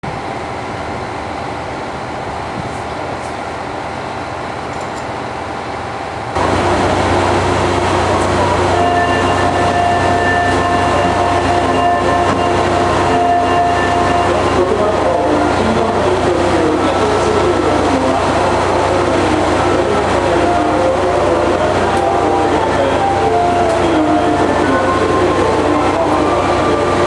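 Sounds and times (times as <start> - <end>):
train running rumble: 0.0 - 27.0
steady whining tones: 6.3 - 27.0.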